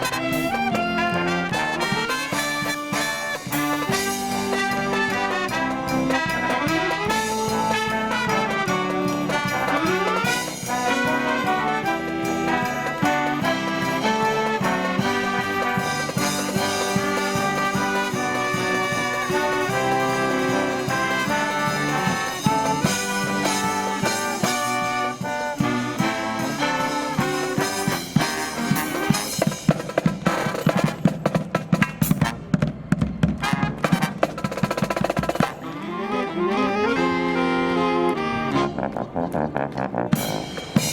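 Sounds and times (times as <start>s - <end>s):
marching brass band playing: 0.0s - 40.9s.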